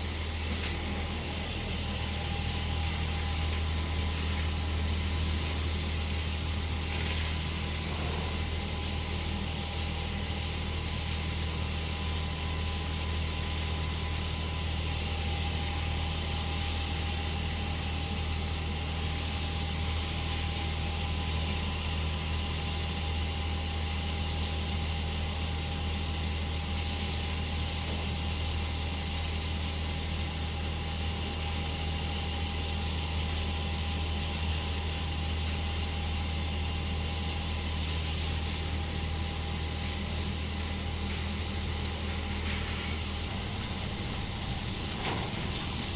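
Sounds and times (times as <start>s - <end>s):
low mechanical drone: 0.0s - 17.4s, 40.4s - 45.9s.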